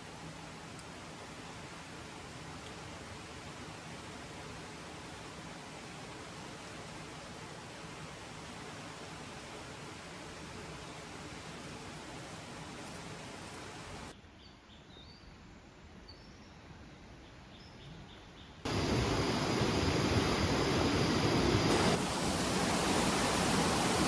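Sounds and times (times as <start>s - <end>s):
waterfall rushing: 18.7s - 24.0s.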